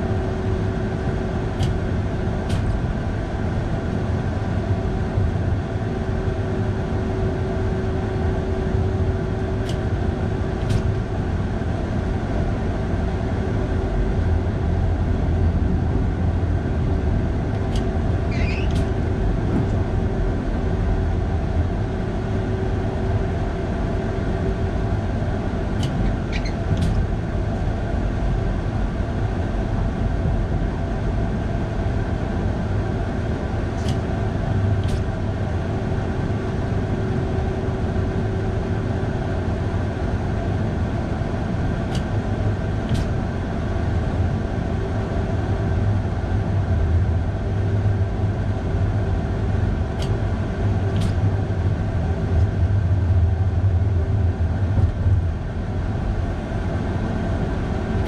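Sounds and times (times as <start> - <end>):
train low rumble and hum: 0.0 - 58.0
short high squeaks: 18.3 - 19.0, 25.9 - 26.8.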